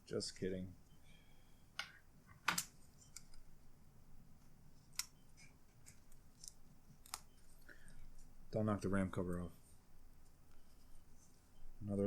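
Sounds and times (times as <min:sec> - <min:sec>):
plastic laptop parts clicking: 0:05.9 - 0:07.4.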